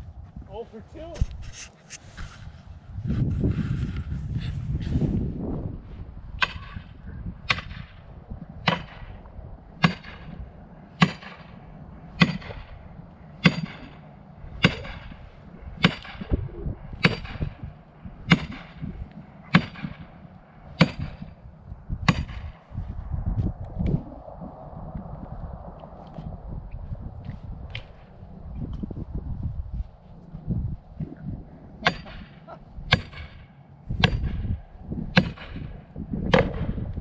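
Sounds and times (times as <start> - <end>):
axe chopping wood: 6.4 - 6.8, 7.5 - 7.8, 8.7 - 9.0, 9.8 - 10.2, 11.0 - 11.4, 12.2 - 12.6, 14.6 - 15.1, 15.8 - 16.2, 17.0 - 17.5, 18.3 - 18.8, 19.5 - 20.0, 20.8 - 21.2, 22.0 - 22.5, 31.8 - 34.5, 35.1 - 35.7, 36.3 - 36.7.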